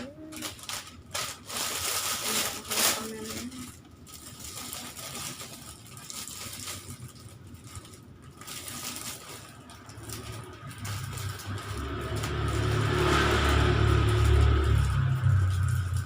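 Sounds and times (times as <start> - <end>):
plastic packaging crinkling: 0.0 - 16.0
vehicle engine rumble: 0.0 - 16.0.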